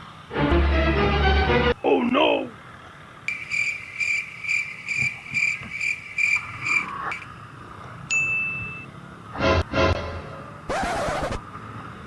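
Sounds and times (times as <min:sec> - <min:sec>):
high ding: 0:08.1 - 0:08.9.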